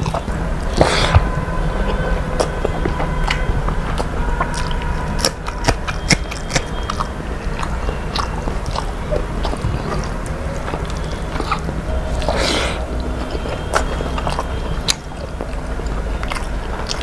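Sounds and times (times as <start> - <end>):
person chewing food: 0.0 - 17.0
low hum: 6.6 - 17.0.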